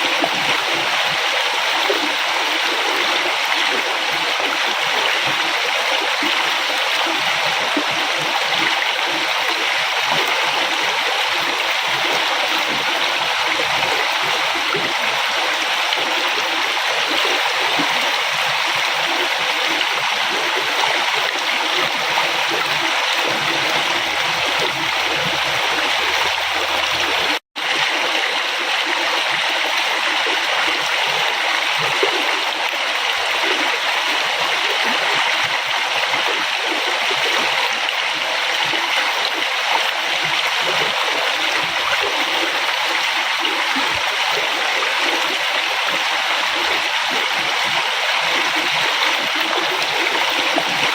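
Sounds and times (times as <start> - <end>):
river water rushing: 8.4 - 29.7.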